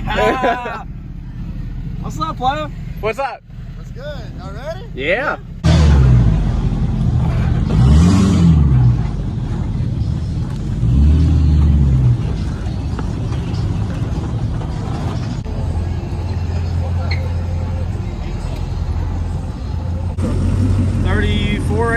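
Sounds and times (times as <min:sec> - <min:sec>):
pickup truck engine revving: 0:05.4 - 0:21.9.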